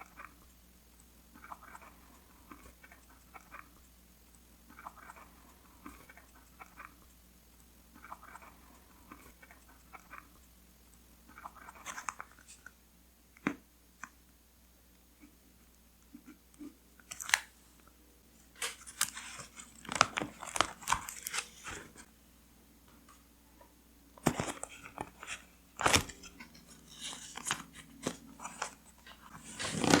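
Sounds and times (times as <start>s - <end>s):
paper rustling and crinkling: 18.6s - 22.1s, 24.2s - 30.0s.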